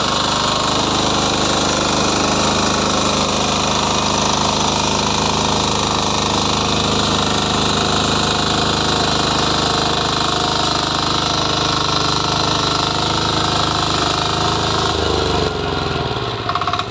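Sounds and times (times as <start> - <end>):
small engine running: 0.0 - 16.9.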